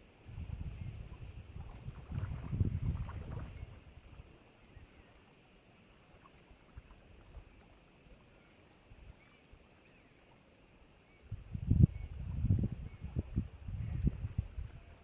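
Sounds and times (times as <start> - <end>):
wind gusts on microphone: 0.0 - 5.0, 11.2 - 15.0.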